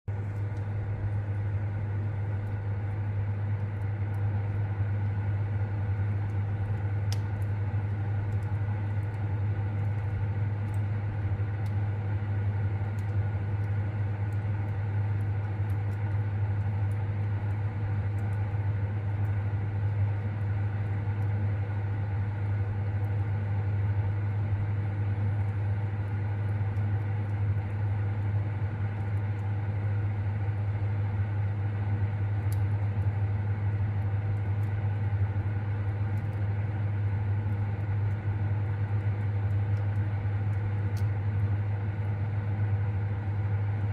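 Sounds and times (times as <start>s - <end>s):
low mechanical hum: 0.0s - 43.9s
fire crackling: 0.1s - 43.9s
fire pop: 6.1s - 10.9s.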